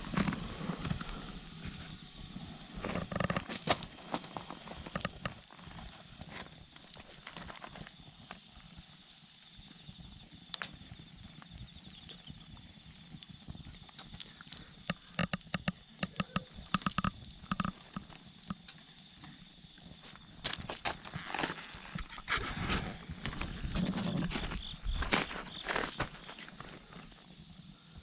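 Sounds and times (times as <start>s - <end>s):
insects chirping: 0.0s - 28.0s
campfire crackling and popping: 2.7s - 23.7s.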